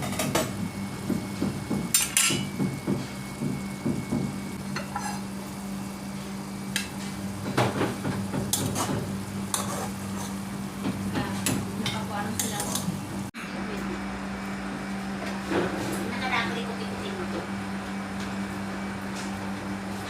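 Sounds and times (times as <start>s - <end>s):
low sizzling: 0.0s - 13.4s
utensil scraping in a pan: 4.7s - 5.3s, 7.9s - 10.6s.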